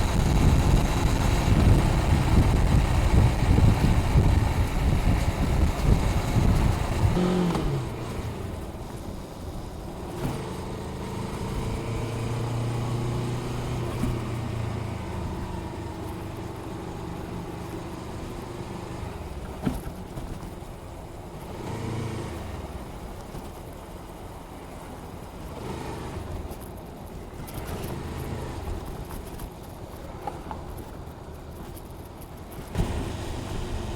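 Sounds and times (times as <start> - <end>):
motorcycle engine running: 0.0 - 8.8, 32.7 - 33.9
wind noise on microphone: 0.0 - 10.5.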